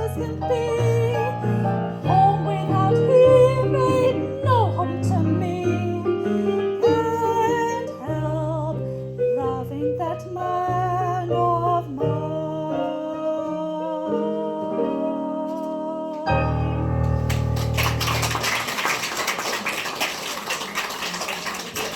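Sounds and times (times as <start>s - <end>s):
woman singing: 0.0s - 16.7s.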